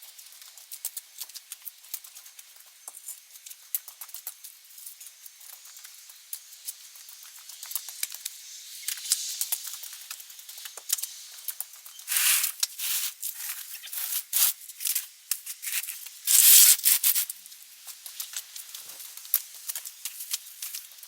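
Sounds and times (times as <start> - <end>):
close rustling and rubbing: 12.1 - 17.2.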